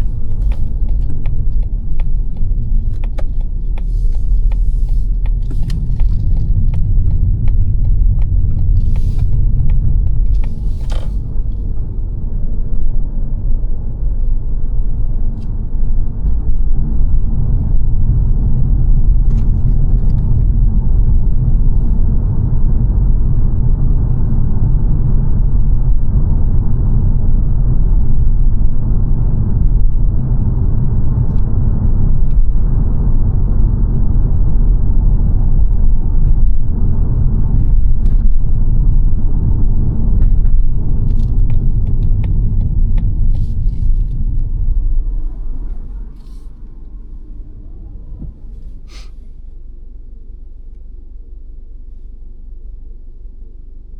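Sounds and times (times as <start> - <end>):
car cabin road and engine rumble: 0.0 - 53.9.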